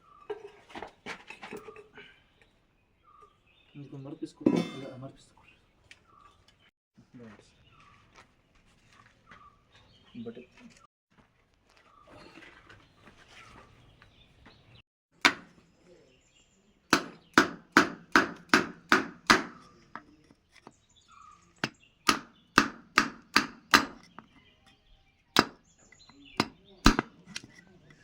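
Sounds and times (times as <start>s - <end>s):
hammer blows ringing: 17.0s - 20.1s, 22.1s - 24.3s, 25.4s - 25.6s, 26.4s - 27.2s.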